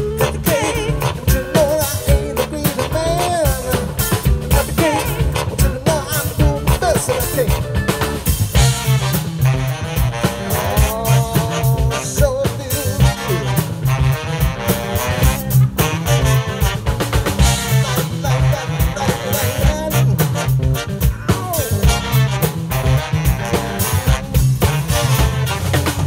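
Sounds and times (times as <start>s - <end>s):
band with horn section playing: 0.0s - 26.0s.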